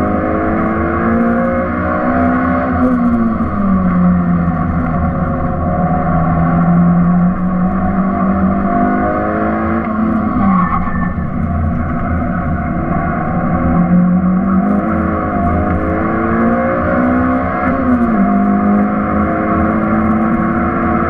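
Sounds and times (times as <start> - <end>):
car engine revving: 0.0 - 21.0
road and wind noise: 0.0 - 21.0.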